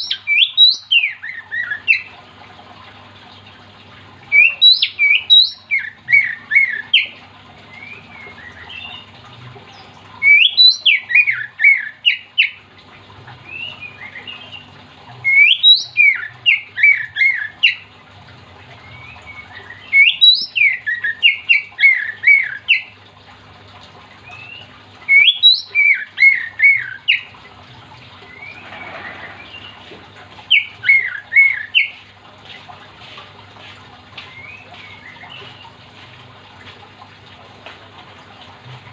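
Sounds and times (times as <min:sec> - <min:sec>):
bird singing: 0:00.0 - 0:02.1, 0:04.4 - 0:09.1, 0:09.8 - 0:12.6, 0:13.5 - 0:17.8, 0:18.8 - 0:22.9, 0:24.3 - 0:27.3, 0:28.2 - 0:29.9, 0:30.5 - 0:31.9
faint steady hum: 0:00.0 - 0:38.9.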